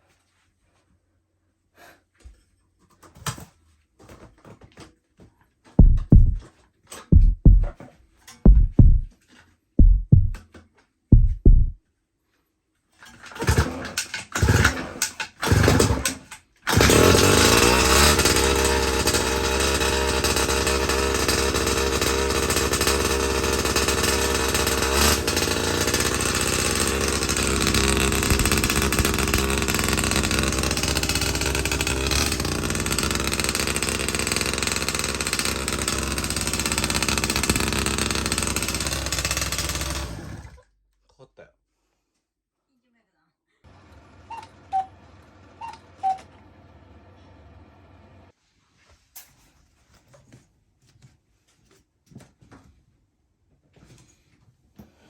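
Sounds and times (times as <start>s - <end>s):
two-stroke engine sputtering and running: 5.8s - 6.4s, 7.1s - 7.7s, 8.5s - 9.1s, 13.4s - 40.6s.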